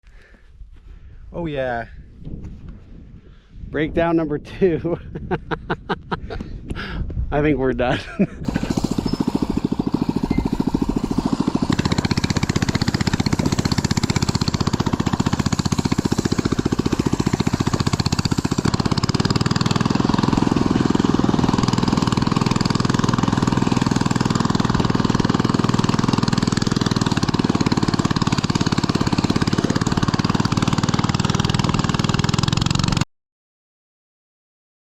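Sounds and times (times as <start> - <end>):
small engine puttering: 8.4 - 33.0.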